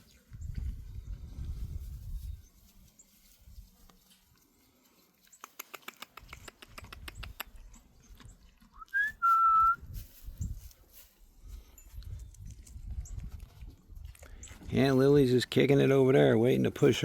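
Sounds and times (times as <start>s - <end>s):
quick clicks: 5.3s - 7.6s
short whistle: 8.8s - 9.9s.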